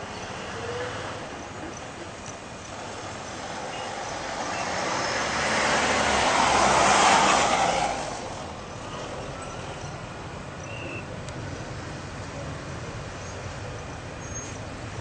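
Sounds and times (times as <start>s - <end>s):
vehicle passing close by: 2.9s - 9.1s.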